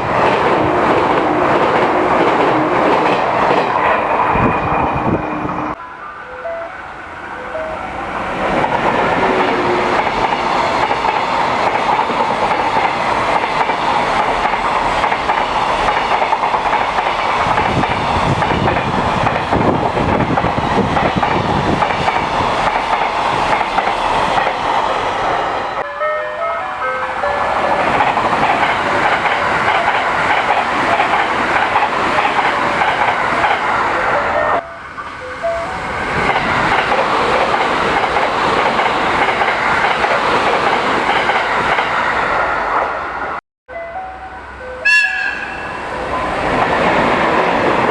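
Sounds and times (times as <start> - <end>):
train wheels clattering: 8.5 - 25.0, 27.3 - 33.8.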